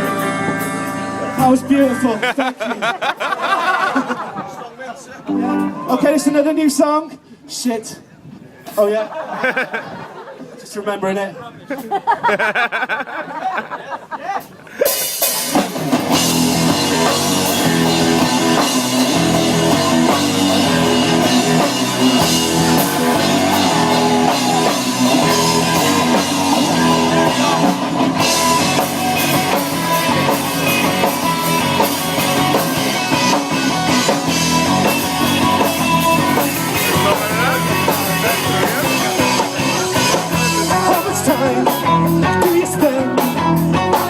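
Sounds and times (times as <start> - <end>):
drum kit: 0.0 - 2.2, 14.8 - 44.0
electric guitar: 0.0 - 2.3, 5.3 - 6.0, 14.8 - 44.0
live rock band playing: 0.0 - 3.8, 5.2 - 6.8, 14.4 - 44.0.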